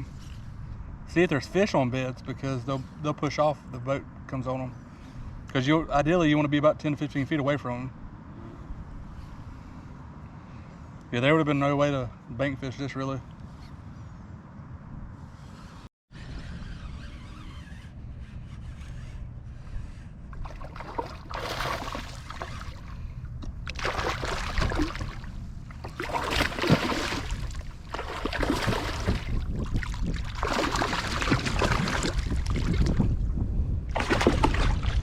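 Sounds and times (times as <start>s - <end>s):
steady low rumble: 19.2s - 35.0s
water splashing against kayak hull: 20.3s - 33.3s, 33.9s - 35.0s.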